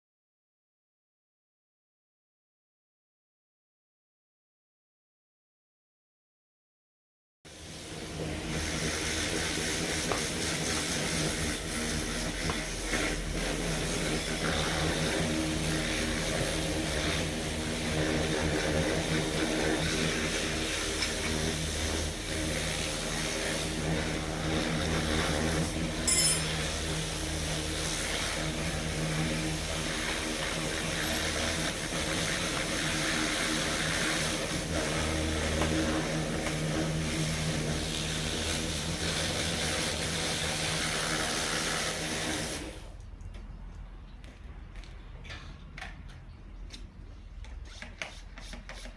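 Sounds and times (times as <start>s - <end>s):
sharp metallic clank: 26.0s - 26.6s.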